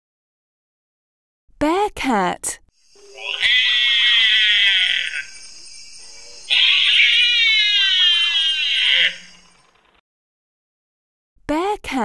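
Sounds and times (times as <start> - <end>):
binturong high-pitched calls: 2.8 - 10.0.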